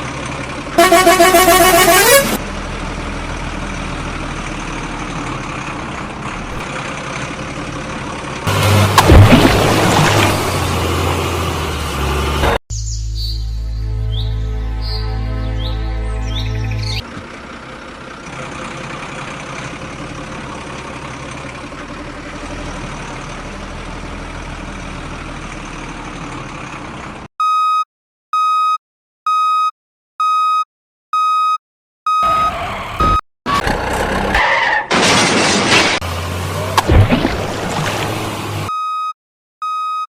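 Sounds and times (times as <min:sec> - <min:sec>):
truck engine running: 0:00.0 - 0:12.6, 0:15.5 - 0:27.3, 0:32.2 - 0:38.7
reversing alarm beeping: 0:28.4 - 0:33.2, 0:38.7 - 0:40.0.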